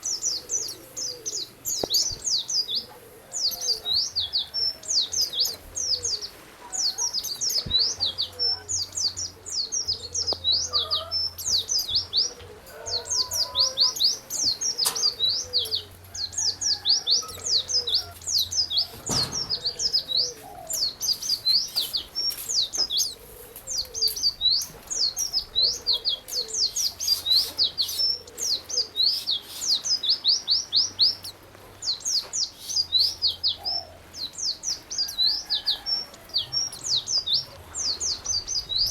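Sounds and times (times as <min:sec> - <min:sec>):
songbird singing high chirps: 0:00.0 - 0:38.9.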